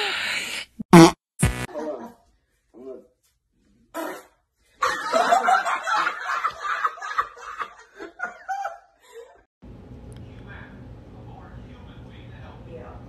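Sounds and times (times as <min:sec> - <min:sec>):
loud human laughter: 0:04.8 - 0:09.5.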